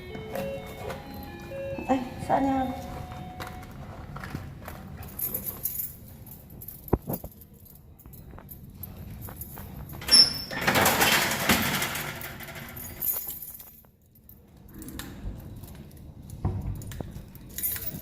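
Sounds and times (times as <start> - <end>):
keys jangling: 2.9 - 18.0
small knocks and clinks: 3.1 - 18.0
door squeaking open: 10.0 - 11.7.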